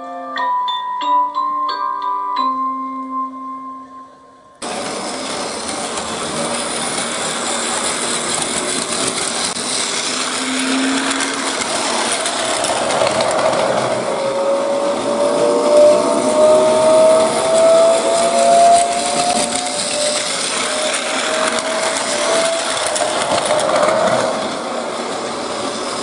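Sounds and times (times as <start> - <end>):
train running: 4.6 - 26.0
motor whine rising in pitch: 9.6 - 24.4.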